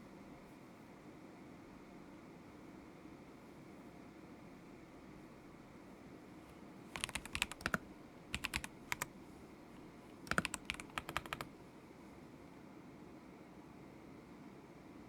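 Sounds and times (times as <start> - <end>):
typing on mechanical keyboard: 6.9 - 9.1, 10.2 - 11.5.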